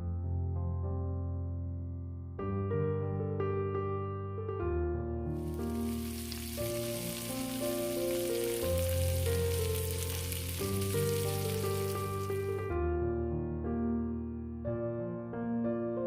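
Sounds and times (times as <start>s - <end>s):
gentle piano music: 0.0s - 16.0s
food sizzling in a pan: 5.4s - 12.5s.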